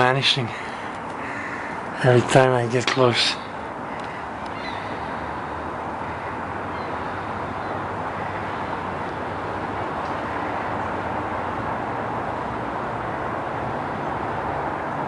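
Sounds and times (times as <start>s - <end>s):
faint high calls: 0.0s - 11.3s
outdoor rumble and hiss: 0.0s - 15.0s.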